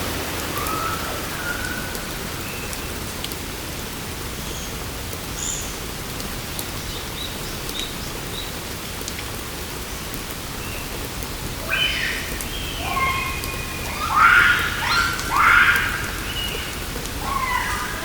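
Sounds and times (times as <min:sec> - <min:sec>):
rain falling in forest: 0:00.0 - 0:18.0
loud animal call: 0:11.7 - 0:16.6.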